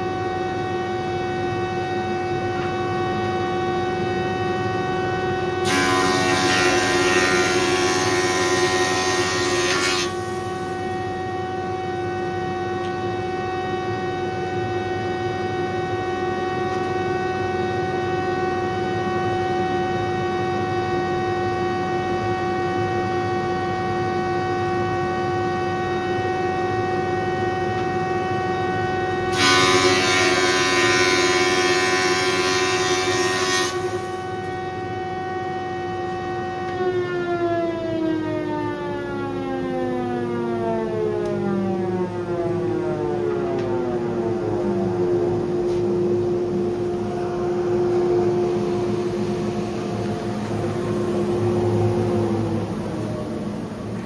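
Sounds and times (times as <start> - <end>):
thickness planer whining: 0.1 - 21.3, 29.2 - 54.0
planer cutting board: 5.6 - 10.4, 29.3 - 34.1.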